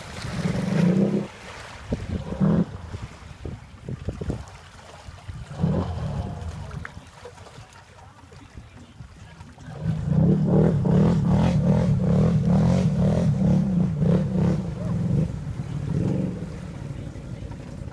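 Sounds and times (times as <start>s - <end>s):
off-road vehicle engine running hard: 9.6s - 17.9s.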